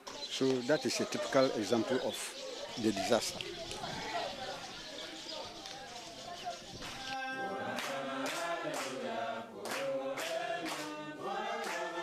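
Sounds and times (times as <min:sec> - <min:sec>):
clap-like beat: 0:06.8 - 0:09.0, 0:09.6 - 0:11.0, 0:11.6 - 0:12.0
group singing in chorus: 0:06.8 - 0:12.0.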